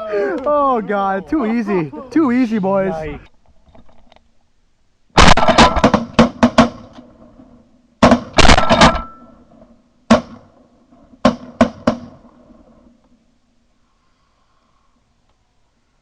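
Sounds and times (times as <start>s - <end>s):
shotgun shots: 5.2s - 7.0s, 8.0s - 9.2s, 10.1s - 10.5s.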